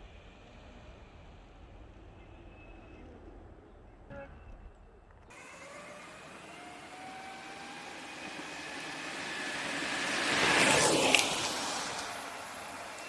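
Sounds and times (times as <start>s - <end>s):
wheels rolling on pavement: 5.1s - 13.0s
electric motor whine: 5.3s - 13.0s.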